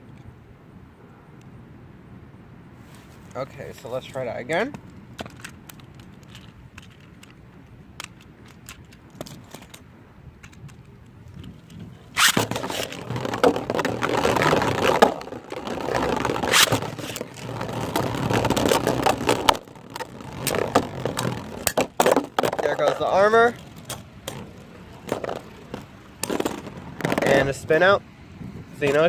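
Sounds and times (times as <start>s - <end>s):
spinning tops scraping: 12.1s - 27.5s.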